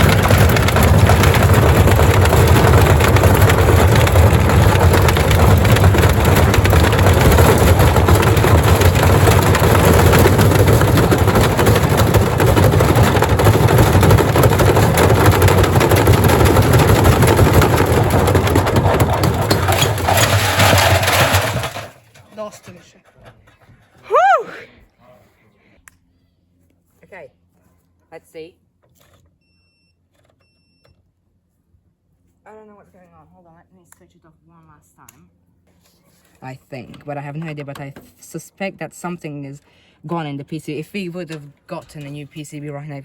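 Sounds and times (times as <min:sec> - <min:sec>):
washing machine with bricks: 0:00.0 - 0:24.4, 0:36.8 - 0:43.0.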